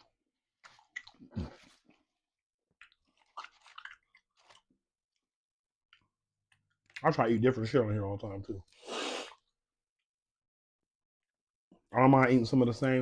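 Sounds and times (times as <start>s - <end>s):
person chewing food: 0.0s - 7.0s.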